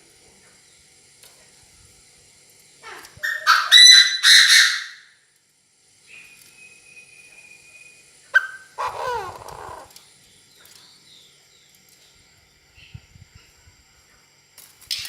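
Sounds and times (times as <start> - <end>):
faint steady high tone: 6.1 - 8.8
animal call falling in pitch: 8.4 - 10.0.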